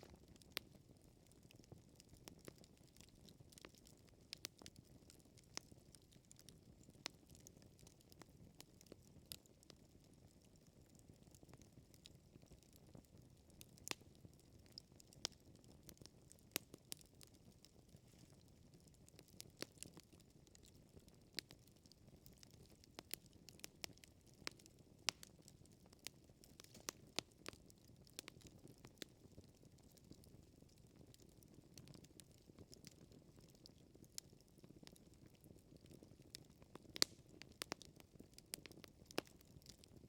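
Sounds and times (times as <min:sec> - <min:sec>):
campfire crackling and popping: 0:00.0 - 0:40.0
low steady fire rumble: 0:00.0 - 0:40.0.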